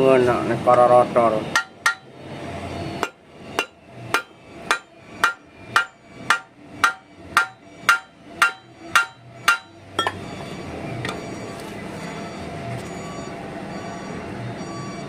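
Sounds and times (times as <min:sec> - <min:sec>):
hammer striking metal: 0:01.5 - 0:02.1, 0:03.0 - 0:10.3.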